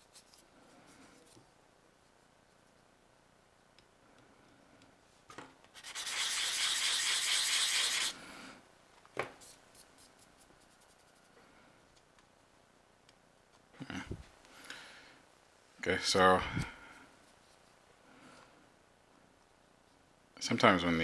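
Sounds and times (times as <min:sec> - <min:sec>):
sanding plastic part: 0:05.8 - 0:08.2.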